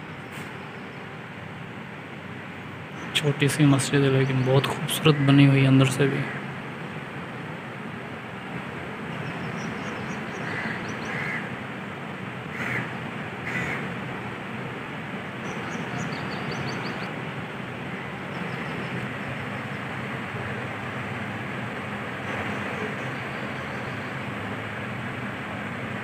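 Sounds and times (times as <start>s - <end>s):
birds calling: 9.0s - 11.6s, 12.5s - 13.9s, 15.3s - 25.1s.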